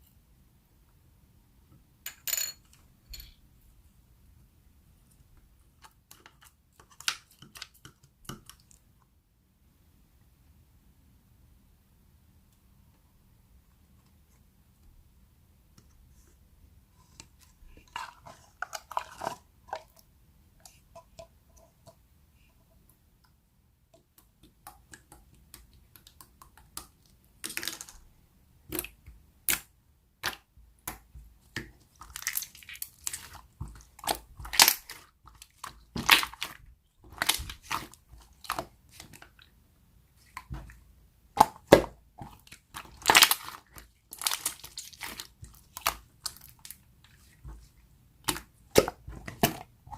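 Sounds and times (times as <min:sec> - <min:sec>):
slime squished popping and crackling: 0:28.7 - 0:39.3, 0:41.4 - 0:46.8.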